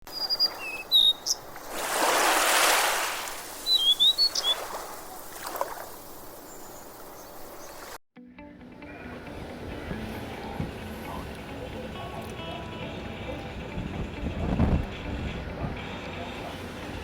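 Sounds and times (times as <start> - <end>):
small birds chirping: 0.0 - 1.9, 3.3 - 8.0.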